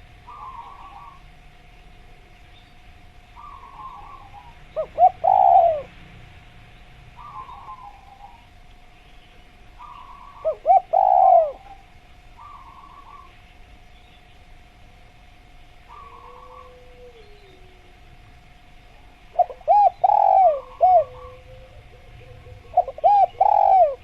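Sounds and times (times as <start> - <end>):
dove cooing: 0.0 - 1.3, 3.4 - 6.0, 7.2 - 8.6, 9.8 - 13.4, 15.8 - 18.1, 18.9 - 24.0
faint steady tone: 0.0 - 24.0
soft bird twittering: 0.2 - 1.2, 6.7 - 14.4, 15.9 - 17.7.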